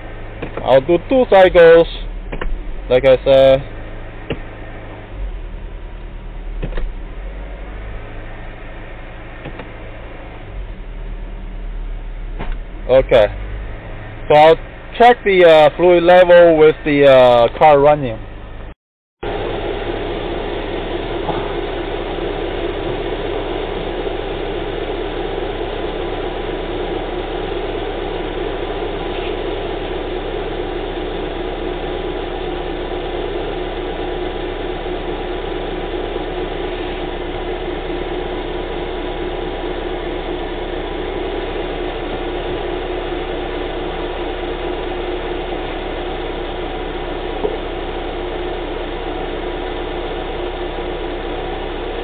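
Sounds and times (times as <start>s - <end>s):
car engine idling: 0.0s - 52.0s.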